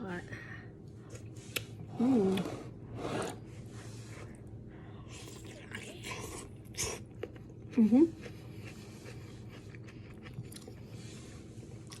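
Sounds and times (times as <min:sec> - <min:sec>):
woman humming: 0:01.9 - 0:02.6
chewing close to microphone: 0:05.1 - 0:11.0.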